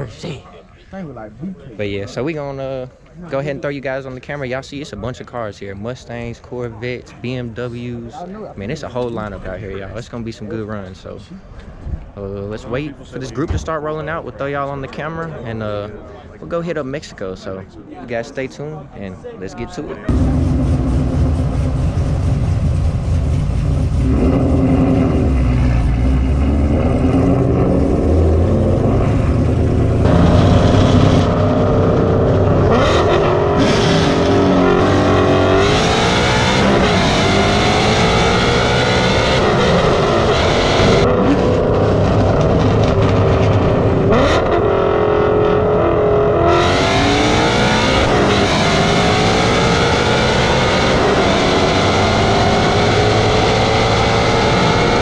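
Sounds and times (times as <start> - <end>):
car engines accelerating hard: 20.1 - 55.0.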